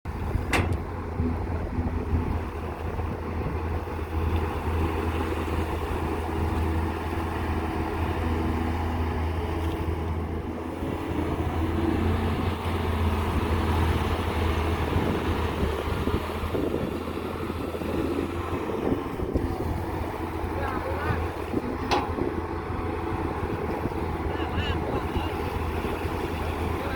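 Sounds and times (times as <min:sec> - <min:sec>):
diesel engine drone: 0:00.0 - 0:26.9.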